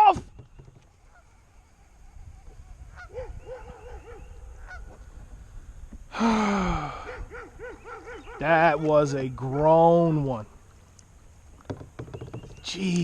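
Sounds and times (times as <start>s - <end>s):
geese honking: 0.9s - 5.0s
drawn-out descending goose call: 1.0s - 5.0s.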